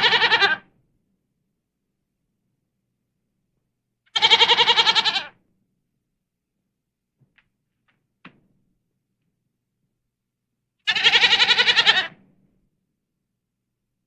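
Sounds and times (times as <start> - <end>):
goat bleating: 0.0 - 0.6, 4.2 - 5.3, 10.9 - 12.1.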